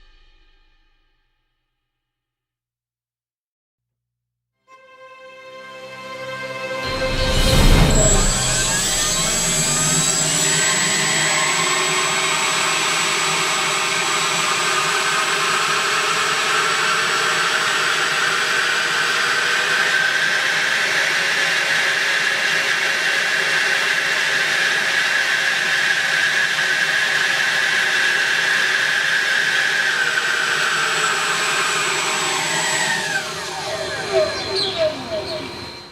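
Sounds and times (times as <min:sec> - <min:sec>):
jet motor whine: 0:05.6 - 0:35.9.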